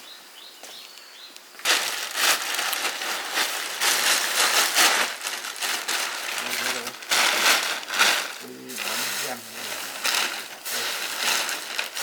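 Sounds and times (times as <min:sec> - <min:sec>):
faint bird chirps: 0:00.0 - 0:01.6
loud rustling and crinkling: 0:01.6 - 0:12.0.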